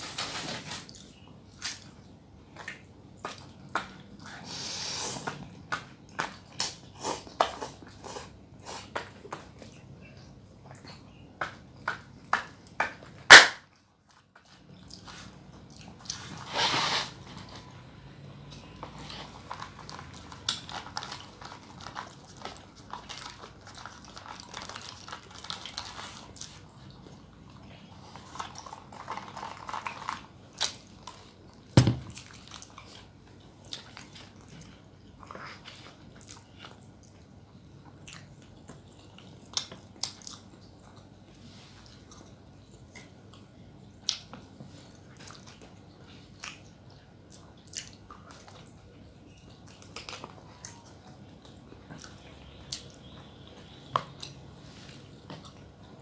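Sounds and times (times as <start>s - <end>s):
close chewing and crunching: 0.1s - 16.6s, 17.2s - 56.0s
knock: 31.8s - 32.1s.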